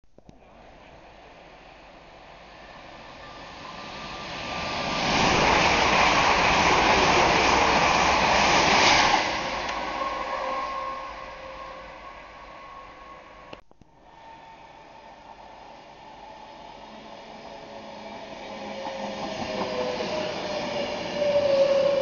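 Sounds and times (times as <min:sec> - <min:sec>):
train rushing past: 0:01.1 - 0:22.0.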